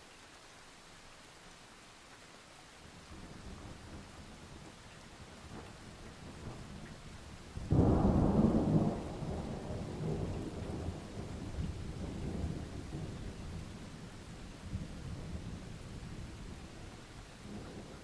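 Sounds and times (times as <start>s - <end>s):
steady rain: 0.0s - 18.0s
thunder clap and rumble: 5.4s - 13.8s.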